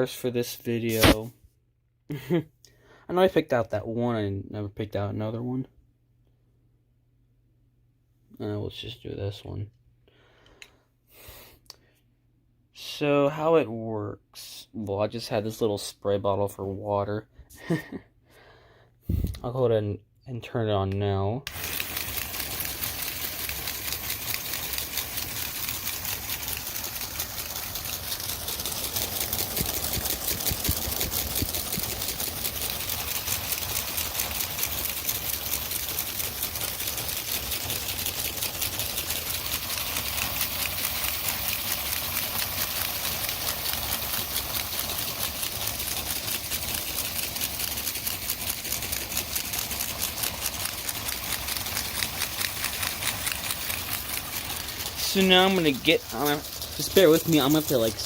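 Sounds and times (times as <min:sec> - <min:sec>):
toy electric motors whirring: 0:00.8 - 0:01.3, 0:21.5 - 0:58.0
rapid even clicking: 0:21.5 - 0:58.0.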